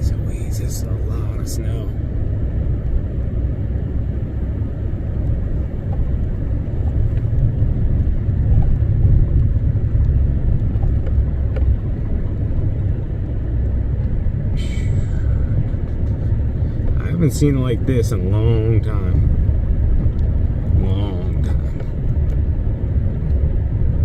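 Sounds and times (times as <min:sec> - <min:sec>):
truck engine rumbling: 0:00.0 - 0:24.0.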